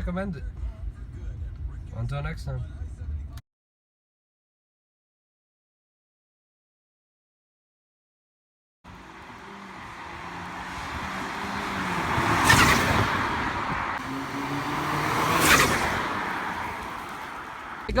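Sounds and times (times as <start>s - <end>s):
cars passing close by: 8.9s - 18.0s.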